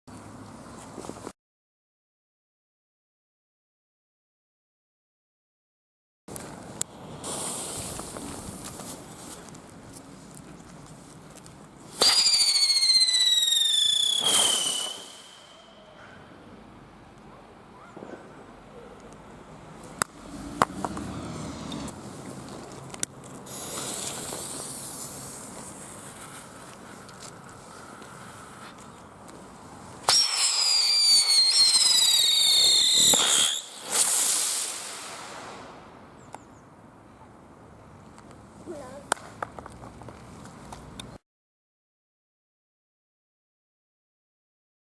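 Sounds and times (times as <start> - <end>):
firework hiss: 6.9 - 9.6, 11.8 - 15.7, 23.2 - 36.0
firework whistle dropping in pitch: 12.0 - 15.9, 30.1 - 33.8.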